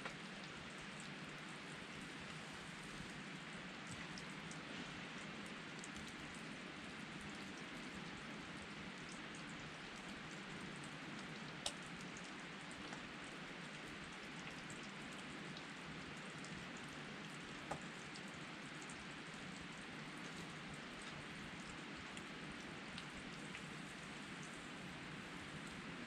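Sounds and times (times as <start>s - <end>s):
campfire ticking and popping: 9.0s - 13.1s.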